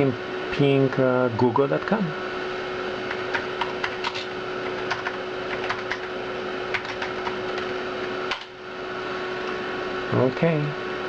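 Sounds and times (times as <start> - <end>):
computer hum and whine: 0.0 - 11.0
keyboard keystroke clicks: 4.8 - 6.1.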